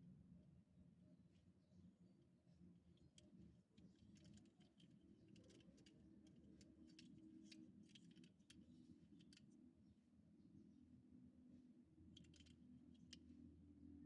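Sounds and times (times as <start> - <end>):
low room hum: 0.0 - 14.0
toy trucks clicking and tapping: 3.0 - 9.5, 12.2 - 13.2.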